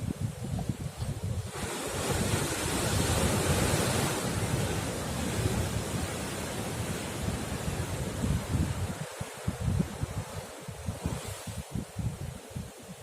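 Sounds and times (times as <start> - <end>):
wind buffeting microphone: 0.0 - 13.0
wave breaking against rocks: 1.5 - 9.0.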